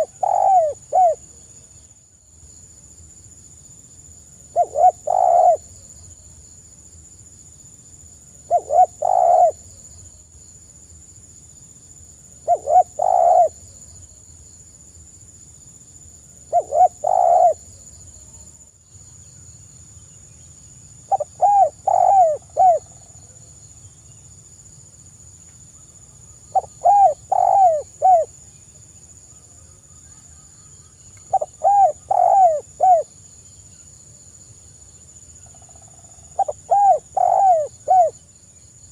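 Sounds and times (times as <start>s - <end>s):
dove cooing: 0.0s - 1.2s, 4.5s - 5.7s, 8.5s - 9.6s, 12.4s - 13.6s, 16.5s - 17.6s, 21.1s - 23.0s, 26.5s - 28.3s, 31.3s - 33.1s, 36.4s - 38.2s
faint high-pitched hiss: 0.0s - 38.9s.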